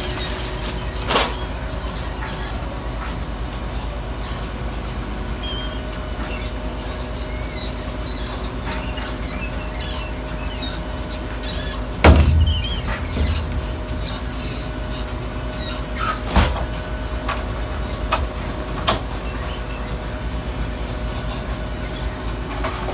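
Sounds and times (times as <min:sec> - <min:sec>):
faint high squeaks: 0:05.3 - 0:20.2, 0:20.8 - 0:22.9
diesel truck engine running: 0:10.1 - 0:22.9
loud metal bang: 0:12.0 - 0:16.5.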